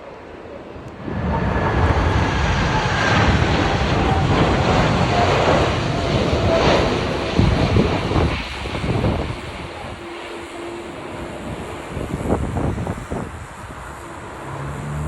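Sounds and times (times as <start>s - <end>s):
jet airliner passing overhead: 0.0s - 15.0s
wind rumbling on microphone: 0.7s - 15.0s.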